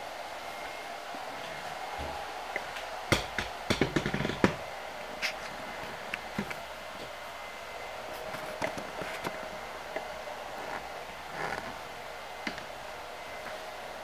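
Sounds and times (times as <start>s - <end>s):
steady low hum: 0.0s - 14.0s
tools knocking and clicking: 3.1s - 4.6s.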